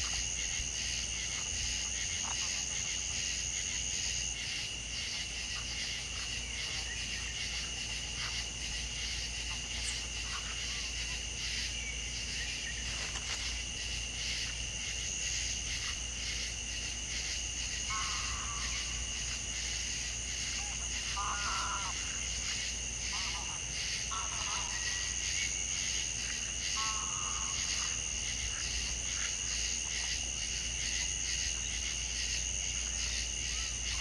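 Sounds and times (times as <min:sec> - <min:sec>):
insects chirring: 0:00.0 - 0:34.0
short bird or frog calls: 0:17.9 - 0:19.1, 0:20.6 - 0:22.2, 0:23.1 - 0:25.2.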